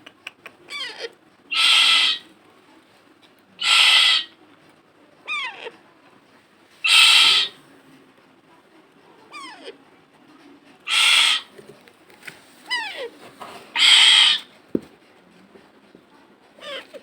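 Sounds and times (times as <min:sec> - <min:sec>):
parrot squawking: 0:00.7 - 0:02.2, 0:03.6 - 0:04.3, 0:06.8 - 0:07.6, 0:10.9 - 0:11.5, 0:13.8 - 0:14.5.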